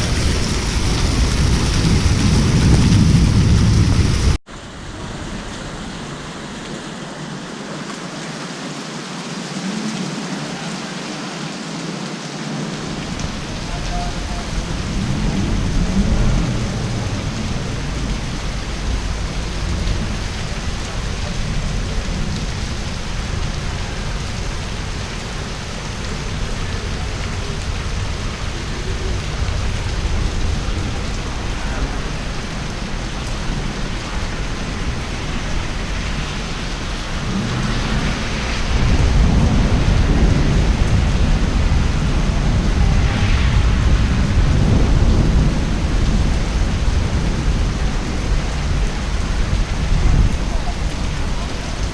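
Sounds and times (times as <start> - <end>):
thunder rumbling: 0.0 - 4.4, 12.6 - 51.9
heavy rain falling: 0.0 - 51.9.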